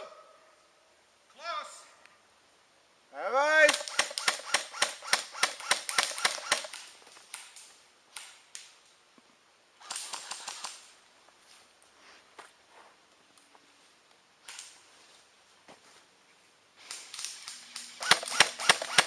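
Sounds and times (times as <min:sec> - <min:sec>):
airsoft guns firing: 0:03.6 - 0:06.9, 0:16.9 - 0:19.0.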